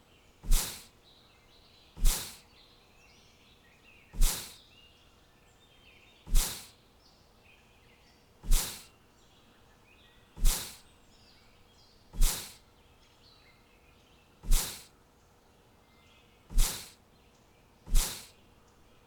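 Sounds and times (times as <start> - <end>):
faint bird chirping: 0.0 - 19.0
sharp short noise bursts: 0.5 - 0.9, 2.0 - 2.4, 4.2 - 4.6, 6.3 - 6.7, 8.4 - 8.9, 10.4 - 10.8, 12.2 - 12.6, 14.4 - 14.9, 16.5 - 17.0, 17.9 - 18.3.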